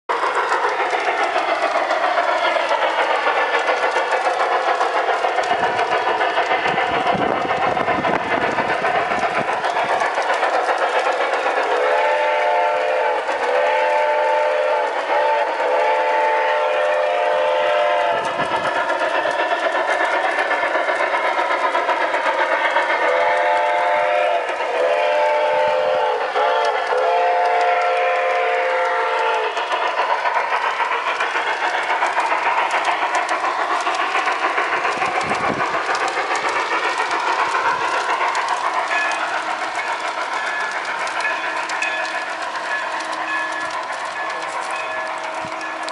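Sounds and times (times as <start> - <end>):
model train wheels clicking: 0.1 - 45.9
multi-note train horn: 11.8 - 18.4, 23.1 - 29.5.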